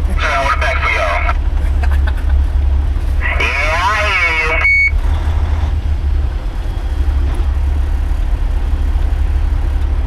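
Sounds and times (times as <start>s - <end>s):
road noise: 0.0s - 10.0s
truck diesel engine drone: 0.0s - 10.0s.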